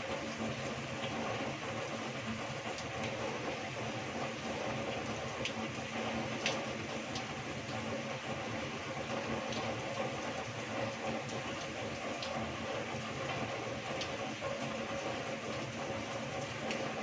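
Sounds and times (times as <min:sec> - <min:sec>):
heavy rain falling: 0:00.0 - 0:17.0
water pouring off roof: 0:00.0 - 0:17.0.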